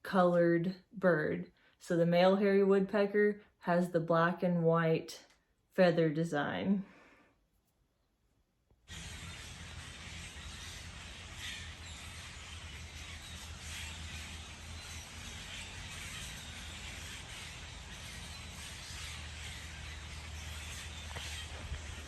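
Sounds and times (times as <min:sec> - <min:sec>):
faint bird calls: 0:08.9 - 0:22.0.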